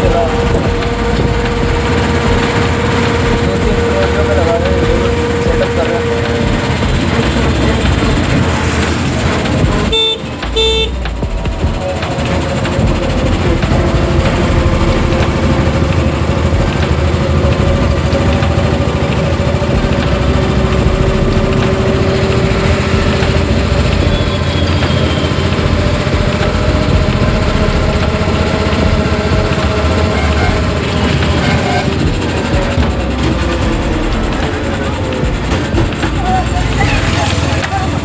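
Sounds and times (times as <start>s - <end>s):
road noise: 0.0s - 38.0s
vehicle engine running: 0.0s - 38.0s.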